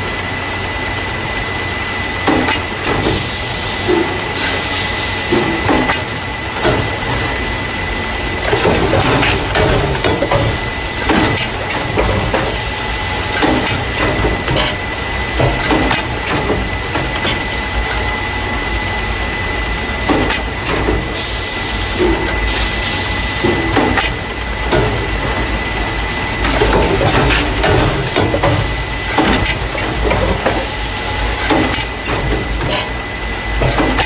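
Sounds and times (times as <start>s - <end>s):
machine humming with high tone: 0.0s - 34.0s
machine parts clacking: 5.2s - 18.1s, 26.3s - 34.0s.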